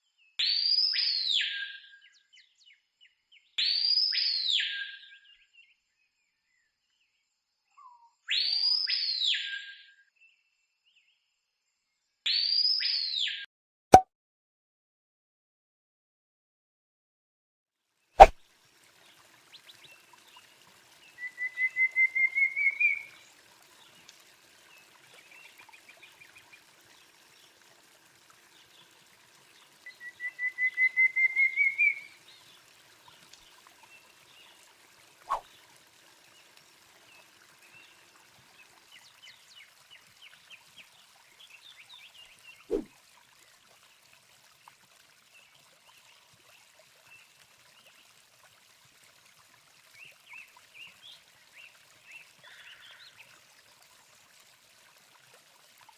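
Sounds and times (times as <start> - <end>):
songbird singing phrases: 0.2 - 7.2, 7.8 - 11.1, 12.3 - 13.4, 19.5 - 24.0, 28.5 - 34.6.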